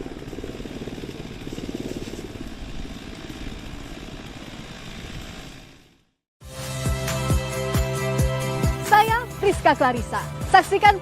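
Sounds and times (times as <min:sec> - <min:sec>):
aircraft engine and blades pulsing: 0:00.0 - 0:06.2.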